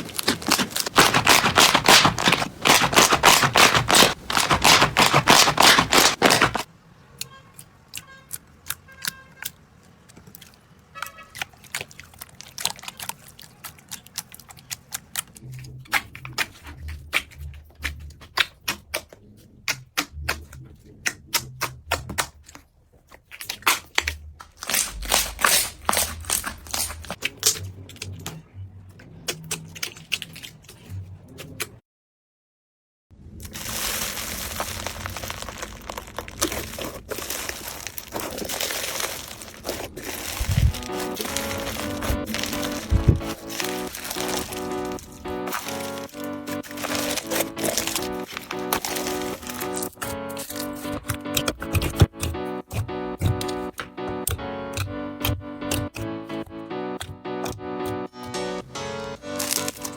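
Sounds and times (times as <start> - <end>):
soft low thumps: 42.0 - 43.4
slime sticky clicks and pops: 49.5 - 56.1.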